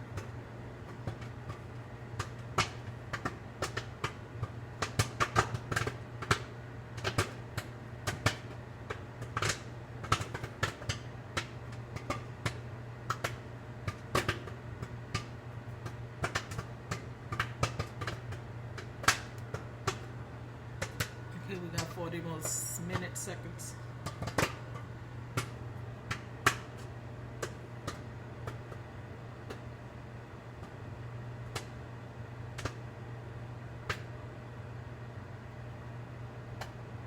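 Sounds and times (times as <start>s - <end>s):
microwave oven hum: 0.0s - 37.0s
popcorn popping: 0.1s - 20.1s.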